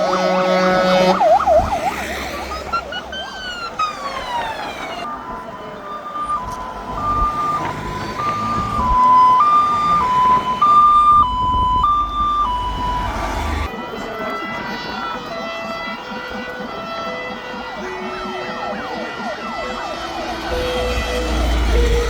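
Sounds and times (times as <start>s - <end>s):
low vehicle rumble: 0.0s - 13.9s, 18.5s - 22.0s
fire engine siren: 0.0s - 22.0s.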